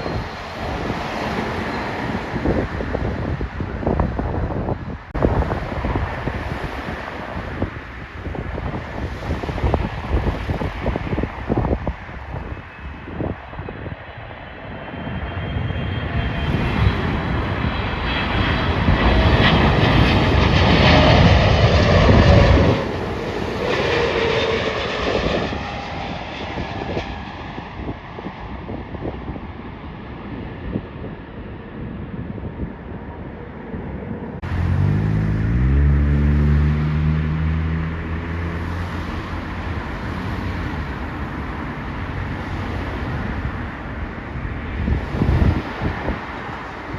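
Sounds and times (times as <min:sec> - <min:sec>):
jet airliner engine noise: 0:00.0 - 0:46.9
low hum rising in pitch: 0:34.4 - 0:39.6.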